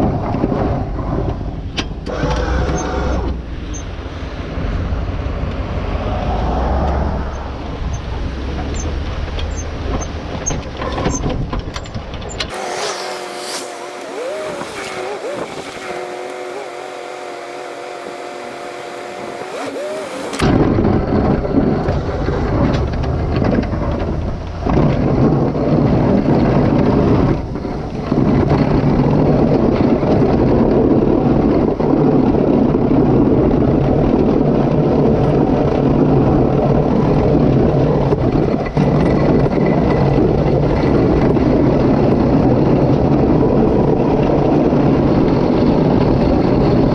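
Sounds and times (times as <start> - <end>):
vehicle engine rumbling: 0.0 - 31.6.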